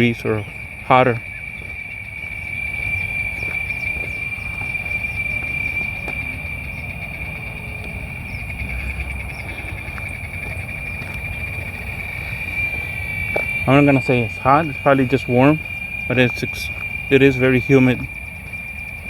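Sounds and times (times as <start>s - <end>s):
cicadas buzzing: 0.0s - 19.0s
low rumbling noise: 0.0s - 19.0s.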